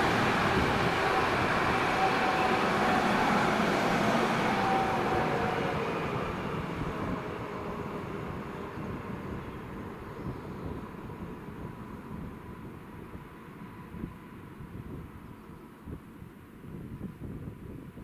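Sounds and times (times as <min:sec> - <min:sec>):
train wheels rumbling on rails: 0:00.0 - 0:13.7.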